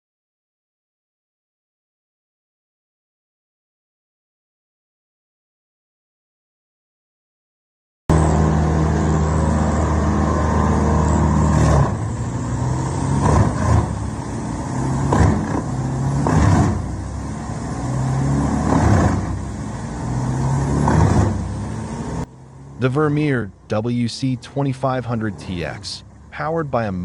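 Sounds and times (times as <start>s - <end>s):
wood chipper diesel engine: 8.1s - 26.9s
wood crunching in chipper: 13.1s - 14.0s, 15.0s - 16.9s.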